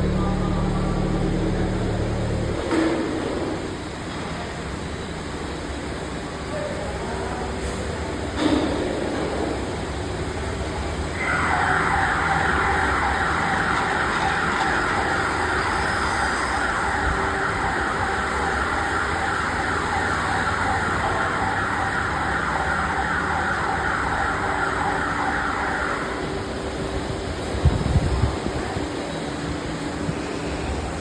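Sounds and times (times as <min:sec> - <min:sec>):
low hum: 0:00.0 - 0:03.8
factory machinery whine: 0:00.0 - 0:31.0.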